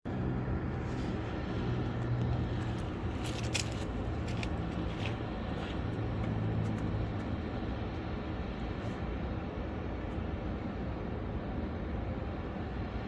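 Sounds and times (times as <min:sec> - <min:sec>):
car engine humming: 0:00.1 - 0:07.7.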